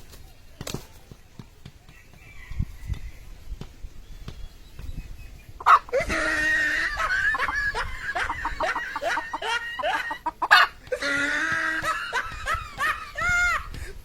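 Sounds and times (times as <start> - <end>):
chicken squawking and clucking: 5.6 - 13.8.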